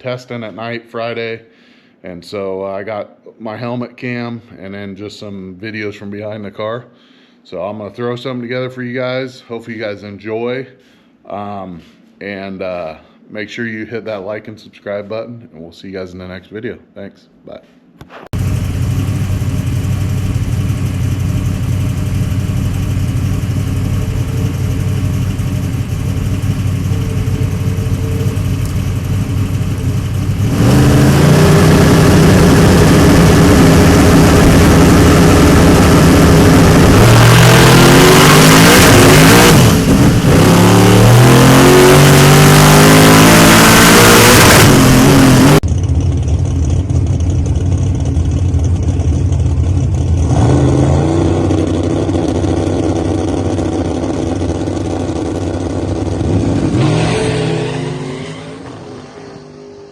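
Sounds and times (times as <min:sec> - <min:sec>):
drag car engine revving: 0:18.4 - 0:59.9.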